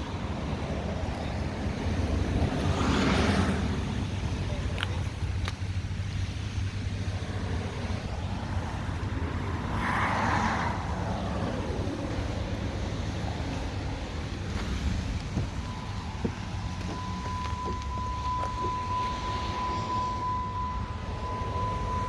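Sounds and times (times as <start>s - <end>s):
car engine idling: 0.0s - 22.0s
steady high tone: 15.4s - 22.0s.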